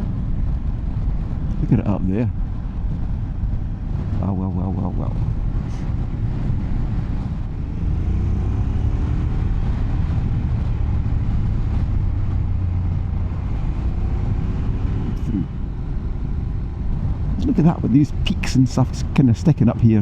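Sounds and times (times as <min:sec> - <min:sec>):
motorcycle engine accelerating: 0:05.4 - 0:18.3.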